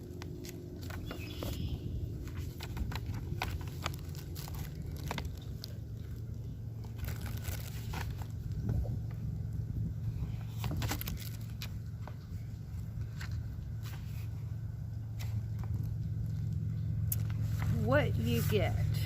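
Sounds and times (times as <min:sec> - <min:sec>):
paper crinkling and rustling: 0:00.0 - 0:09.1, 0:10.3 - 0:19.0
low steady rumble: 0:00.0 - 0:19.0.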